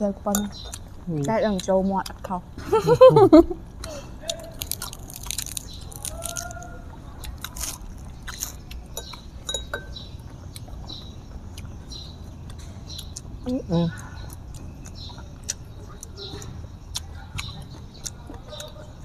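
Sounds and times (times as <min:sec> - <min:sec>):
chewing crunchy lettuce: 0:00.2 - 0:02.3, 0:03.7 - 0:19.0.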